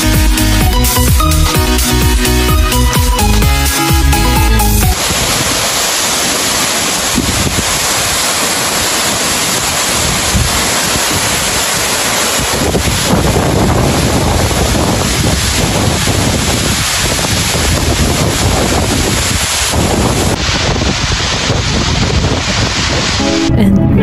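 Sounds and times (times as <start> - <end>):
electronic music: 0.0 - 5.0, 23.2 - 24.0
waterfall roaring: 4.2 - 24.0
wind buffeting microphone: 4.9 - 24.0.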